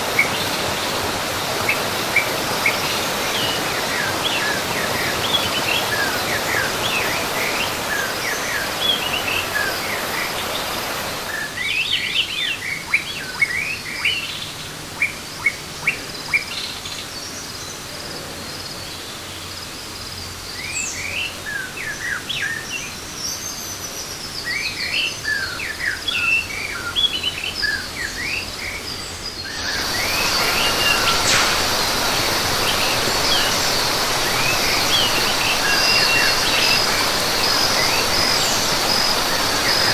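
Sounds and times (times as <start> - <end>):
birds chirping: 0.0 - 39.9
steady background hiss: 0.0 - 39.9
high-pitched drone: 29.6 - 37.8.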